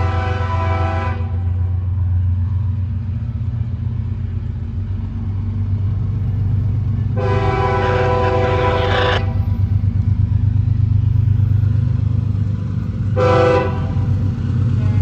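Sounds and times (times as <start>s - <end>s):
train air horn chord: 0.0s - 1.4s, 7.2s - 9.4s, 13.2s - 14.1s
diesel locomotive rumble: 0.0s - 15.0s.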